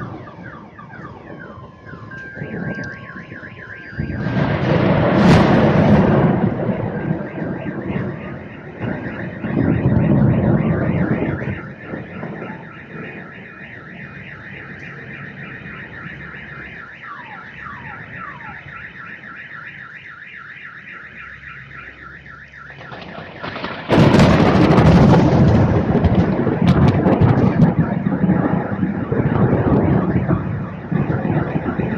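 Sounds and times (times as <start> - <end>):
low thunder rumble: 0.0 - 19.5, 22.4 - 31.9
car alarm electronic tone: 0.0 - 31.9
loud thunder crash: 1.2 - 14.0, 22.7 - 31.9.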